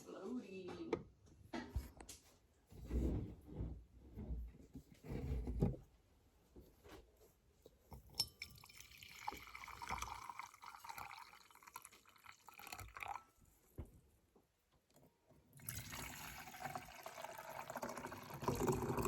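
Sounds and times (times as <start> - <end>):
liquid pouring into container: 8.2 - 13.4, 15.5 - 19.0.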